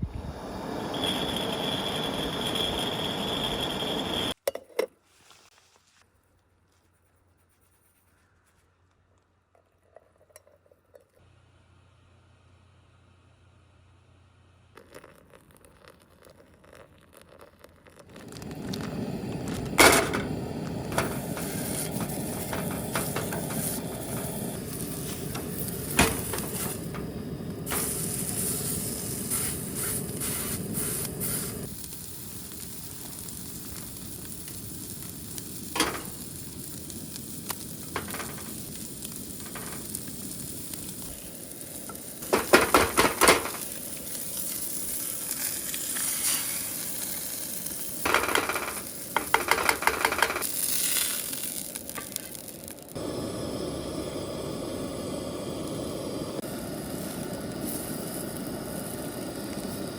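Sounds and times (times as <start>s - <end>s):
food sizzling in a pan: 0.3s - 4.4s, 14.9s - 59.9s
utensils tapping against pan: 48.1s - 50.6s.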